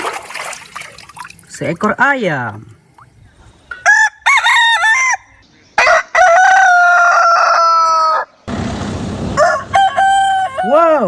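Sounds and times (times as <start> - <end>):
rooster crowing: 3.8 - 8.4, 9.4 - 11.0.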